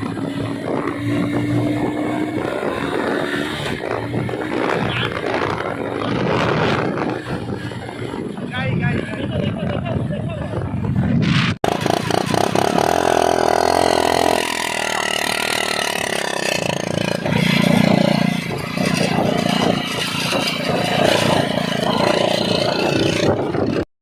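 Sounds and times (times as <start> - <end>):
motorcycle engine running: 11.6 - 23.8.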